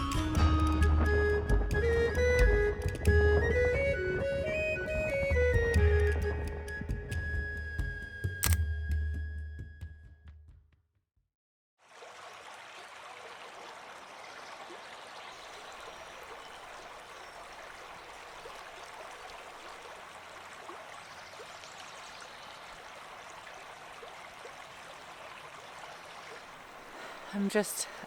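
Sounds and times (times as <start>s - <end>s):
river water flowing: 11.8s - 28.0s.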